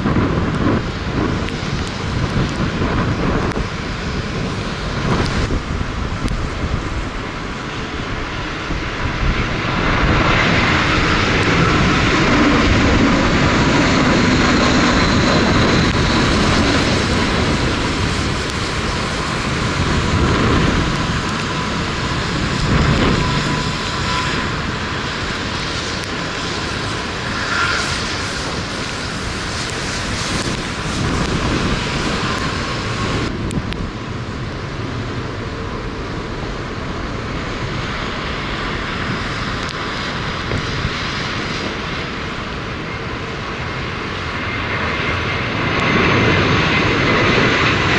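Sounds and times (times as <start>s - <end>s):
jet engines passing close: 0.0s - 47.9s.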